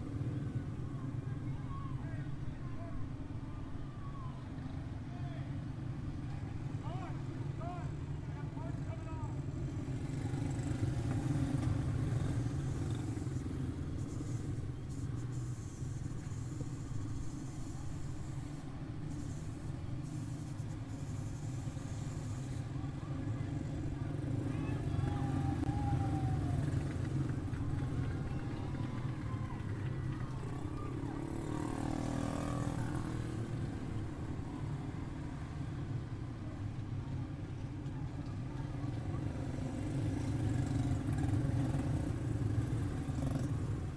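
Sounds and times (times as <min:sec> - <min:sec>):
race car engines rumbling: 0:23.0 - 0:35.9.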